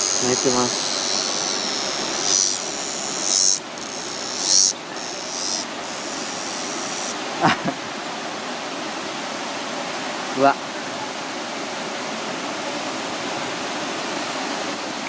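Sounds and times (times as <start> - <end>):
cicada buzzing: 0.0 - 7.4.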